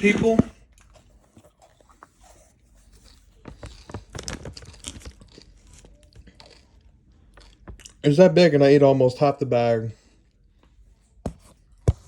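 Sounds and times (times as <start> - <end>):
wrapper crinkling: 3.5 - 5.9.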